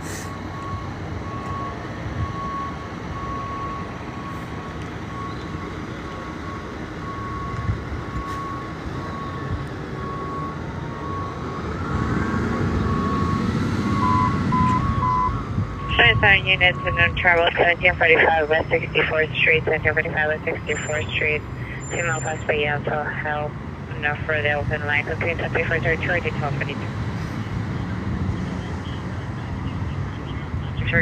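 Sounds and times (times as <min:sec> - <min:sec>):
traffic rumble: 0:00.0 - 0:31.0
short electronic beeps: 0:14.0 - 0:23.1.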